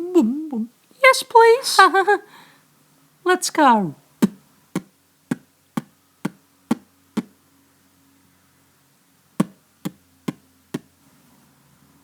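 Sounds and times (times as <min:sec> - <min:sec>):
toy knocking on hard surface: 0:09.4 - 0:10.9.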